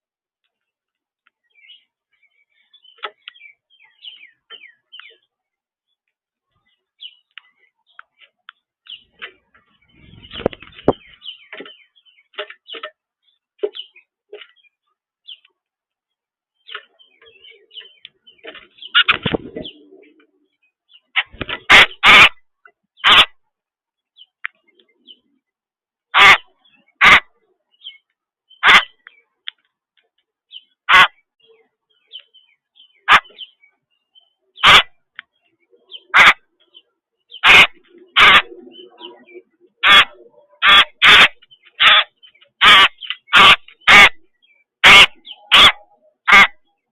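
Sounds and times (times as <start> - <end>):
small birds chirping: 0.4 - 46.9
bird harsh rasping calls: 9.8 - 11.8, 16.7 - 20.0, 21.1 - 22.4, 23.0 - 23.4, 26.1 - 29.1, 30.5 - 31.2, 32.8 - 33.6, 34.6 - 35.1, 35.9 - 46.8.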